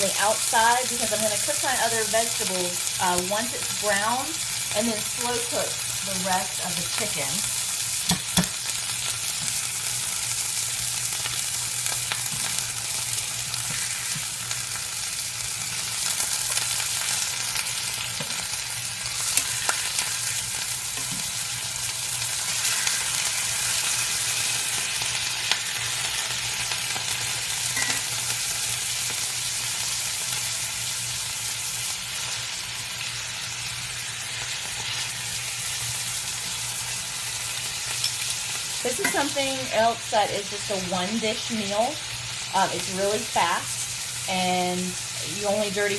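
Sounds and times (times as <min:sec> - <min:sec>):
chicken sizzling in a pan: 0:00.0 - 0:45.9.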